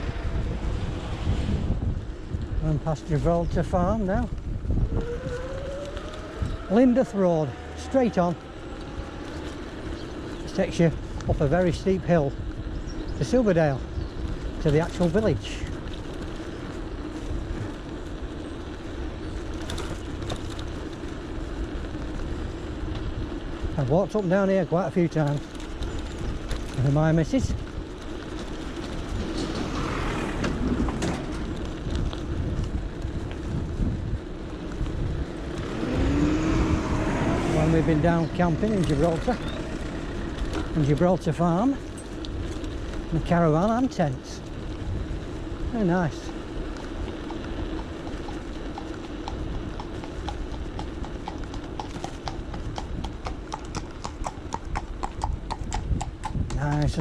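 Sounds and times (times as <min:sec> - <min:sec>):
bike tyres rumbling on road: 0:00.0 - 0:57.0
horse hooves on tarmac: 0:00.0 - 0:57.0
wind buffeting microphone: 0:00.0 - 0:57.0
rising hum: 0:34.6 - 0:40.8.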